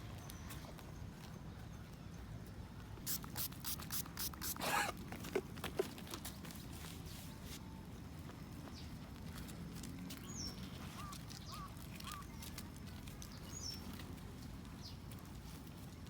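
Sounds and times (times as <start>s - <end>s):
faint bird chirps: 10.2s - 12.4s.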